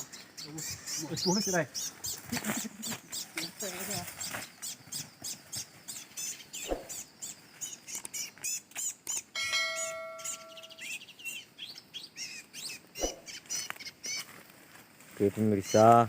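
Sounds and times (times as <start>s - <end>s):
small birds chirping: 0.0s - 14.6s, 15.2s - 16.0s
steady ringing tone: 9.4s - 11.0s.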